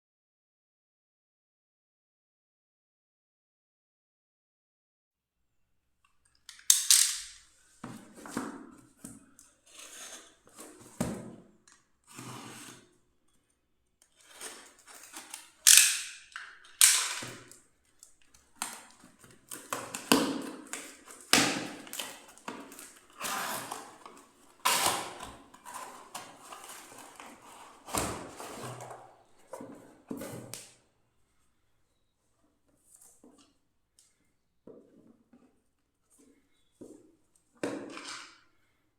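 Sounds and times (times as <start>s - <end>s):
clicks and knocks of unpacking: 6.5s - 9.5s, 14.0s - 30.8s
packaging rustling: 18.4s - 29.0s.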